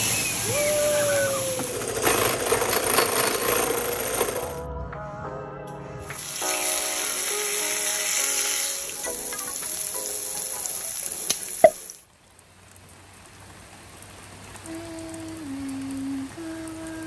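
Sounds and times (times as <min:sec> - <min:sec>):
background music: 0:03.8 - 0:11.8
food sizzling in a pan: 0:06.1 - 0:12.0.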